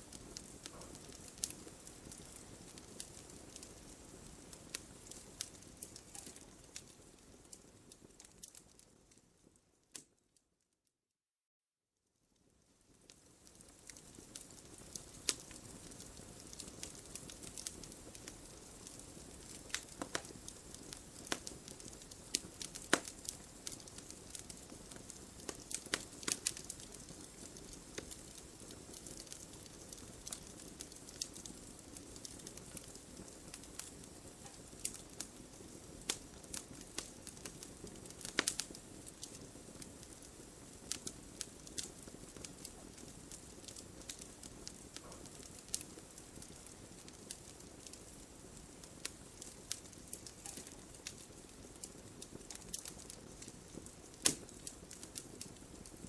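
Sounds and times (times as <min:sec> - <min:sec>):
wood crackling and popping: 0:00.0 - 0:10.2, 0:12.4 - 0:56.0
fire hissing: 0:13.7 - 0:55.6.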